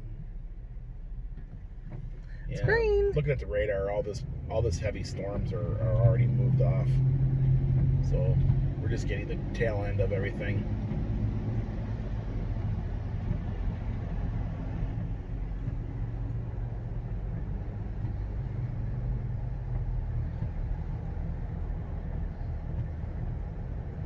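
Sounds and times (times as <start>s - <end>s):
car engine hum: 0.0s - 24.0s
road noise: 0.0s - 24.0s.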